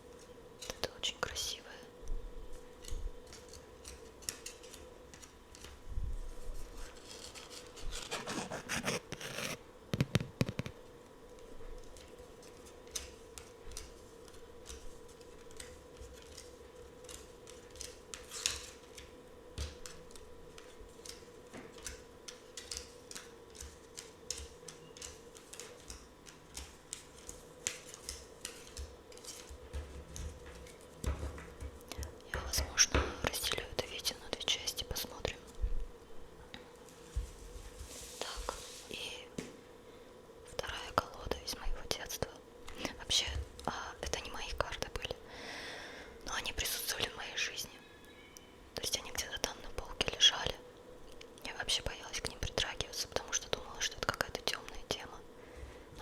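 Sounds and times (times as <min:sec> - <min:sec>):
faint steady hum: 0:00.0 - 0:56.0
cards rubbing and sliding: 0:06.4 - 0:10.8, 0:12.4 - 0:19.2
cards tapping and clicking: 0:07.4 - 0:10.8, 0:11.4 - 0:33.4.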